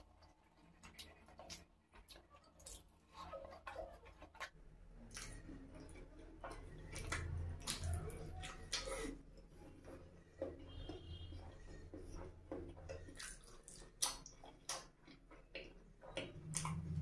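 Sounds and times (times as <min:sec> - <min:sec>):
wet mouth eating sounds: 0:00.0 - 0:17.0
lip smacks and clicks: 0:12.8 - 0:17.0.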